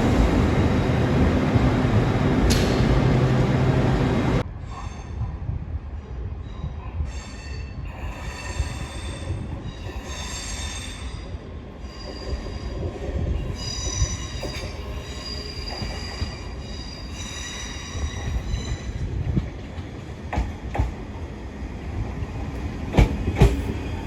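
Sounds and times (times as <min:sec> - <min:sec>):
train wheels squealing on rails: 0:00.0 - 0:19.2
low train rumble: 0:00.0 - 0:24.0.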